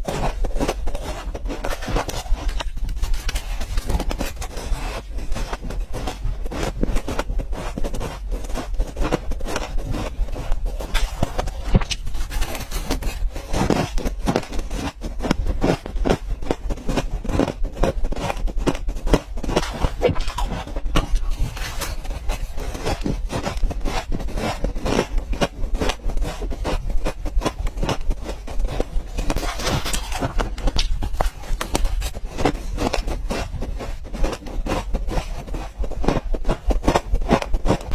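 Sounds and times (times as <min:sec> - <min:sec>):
ice crunching between teeth: 0:00.0 - 0:37.9.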